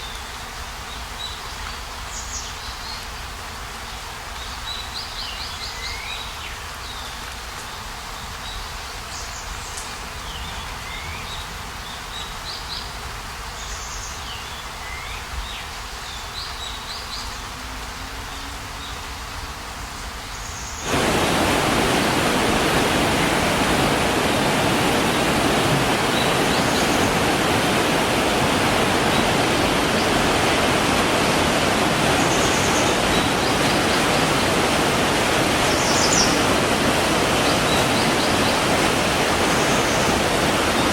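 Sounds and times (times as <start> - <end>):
river rushing over rocks: 20.8 - 40.9.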